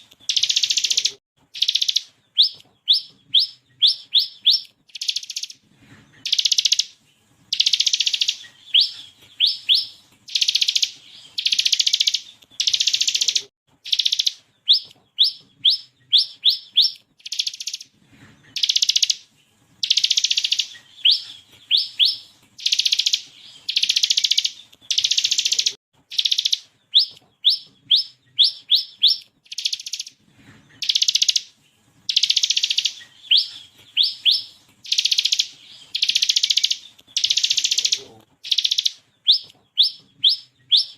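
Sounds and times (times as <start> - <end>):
bird buzzy trills: 32.1 - 40.9.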